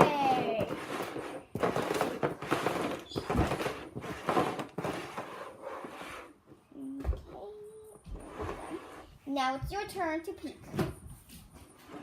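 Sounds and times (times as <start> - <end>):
cups sliding and knocking on table: 0.1 - 6.6, 8.1 - 9.2.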